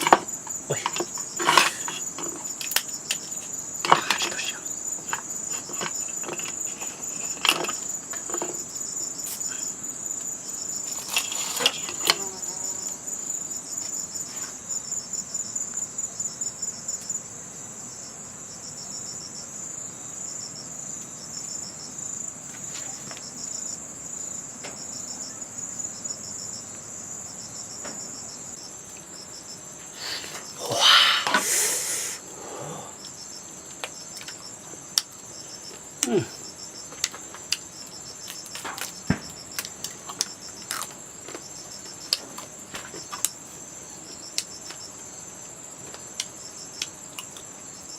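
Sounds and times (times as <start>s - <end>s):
high-pitched insect chorus: 0.0s - 47.9s
knocks and rustles: 5.0s - 8.7s, 38.2s - 43.3s.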